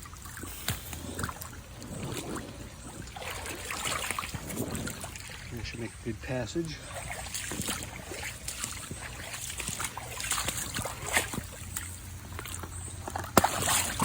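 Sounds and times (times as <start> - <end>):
creek water trickling: 0.0 - 14.0
splashes in creek: 0.0 - 14.0.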